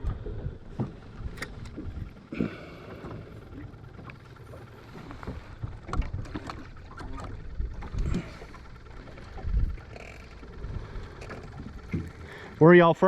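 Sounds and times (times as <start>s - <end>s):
wind rumble on microphone: 0.0s - 2.2s, 9.2s - 10.0s.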